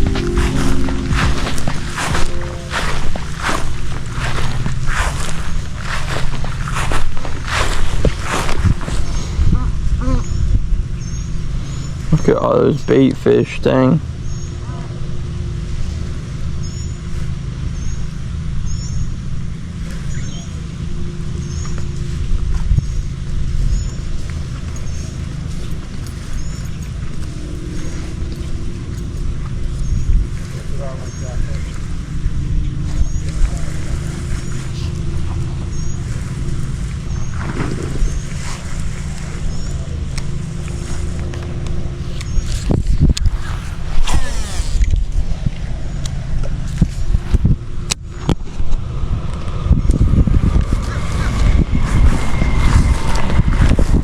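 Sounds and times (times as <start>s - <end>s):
short high chirps: 0.0s - 3.7s
steady low rumble: 0.0s - 12.4s, 14.0s - 44.1s, 44.8s - 54.0s.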